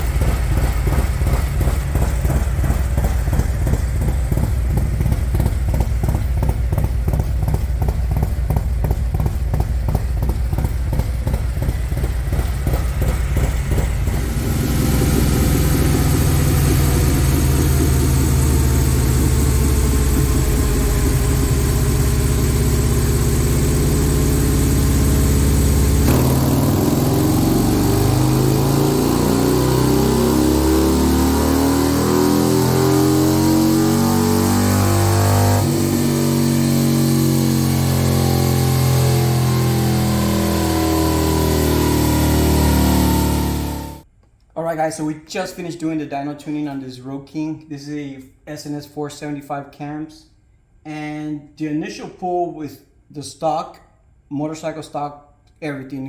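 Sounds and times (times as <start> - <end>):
motorcycle engine idling and revving: 0.0 - 44.1.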